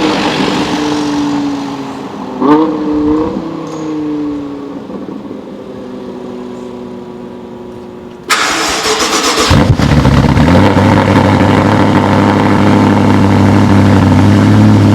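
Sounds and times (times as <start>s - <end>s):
car engine idling: 4.2s - 14.9s.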